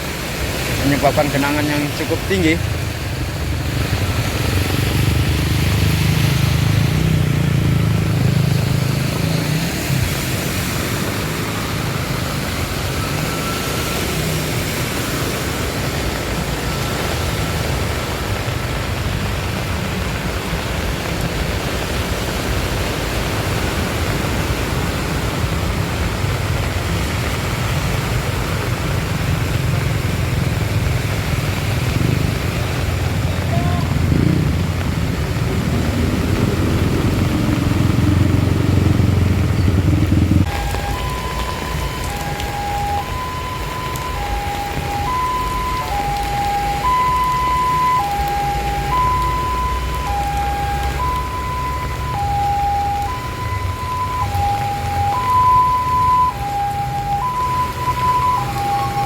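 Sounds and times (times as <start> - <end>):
rain and water hissing: 0.0 - 59.0
motorcycle engine rumble: 15.1 - 59.0.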